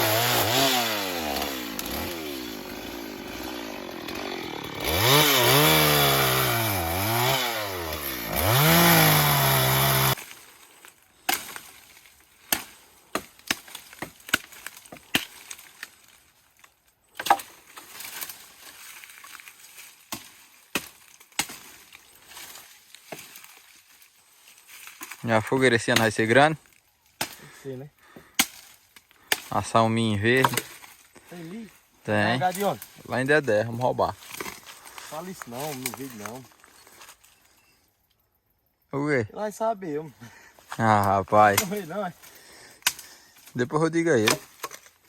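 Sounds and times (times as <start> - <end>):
brush cutter engine revving: 0.0 - 10.3
wood being chopped and broken: 0.1 - 23.7, 27.2 - 27.5, 28.1 - 29.6, 30.3 - 31.0, 34.2 - 36.3, 41.4 - 43.5, 44.1 - 45.0.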